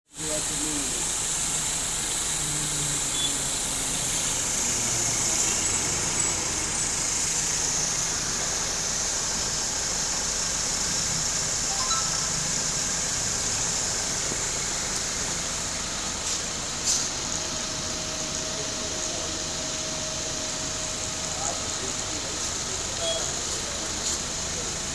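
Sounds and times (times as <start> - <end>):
high-pitched hiss: 0.2 - 17.2
car engine idling: 0.2 - 24.9.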